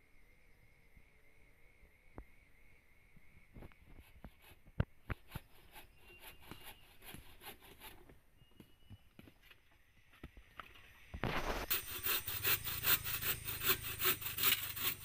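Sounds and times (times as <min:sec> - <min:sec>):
wood and gear knocking and scraping: 0:10.6 - 0:15.0.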